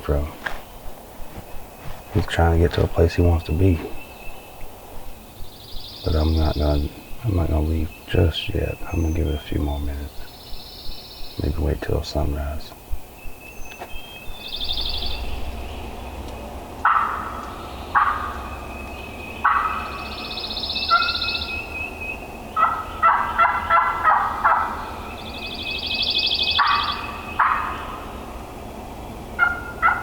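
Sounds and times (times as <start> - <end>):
turkey gobbling: 16.8 - 18.6, 19.4 - 20.1, 20.8 - 21.5, 22.5 - 25.0, 26.5 - 28.3, 29.4 - 30.0.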